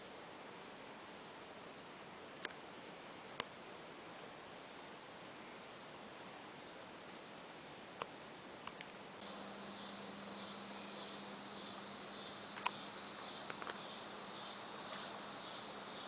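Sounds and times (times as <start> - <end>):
high-pitched insect chorus: 0.0 - 16.0
low steady hum: 0.0 - 16.0
pulsing chirp: 9.2 - 16.0.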